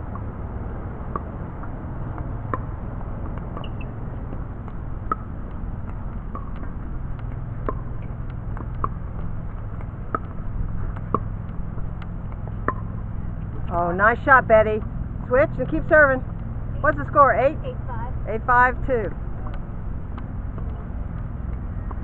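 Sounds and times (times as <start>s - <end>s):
steady low rumble: 0.0s - 22.0s
paddles hitting plastic ball: 2.1s - 13.7s.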